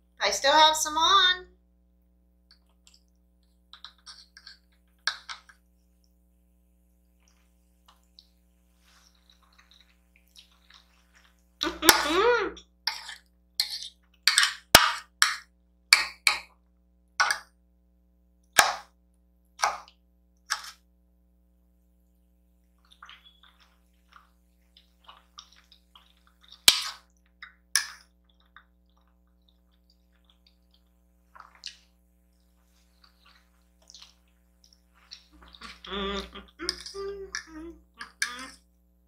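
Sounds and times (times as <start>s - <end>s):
chewing: 7.2s - 11.6s, 22.8s - 38.6s
mouth smacks and slurps: 22.8s - 27.3s, 28.2s - 38.4s.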